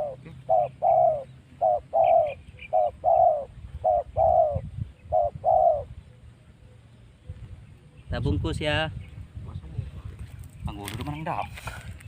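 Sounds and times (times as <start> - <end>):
dove cooing: 0.0 - 8.1.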